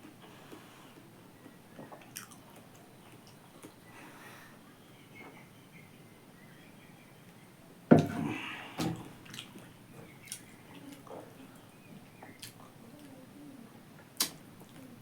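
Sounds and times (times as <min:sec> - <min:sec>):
wet chewing: 0:01.9 - 0:03.8.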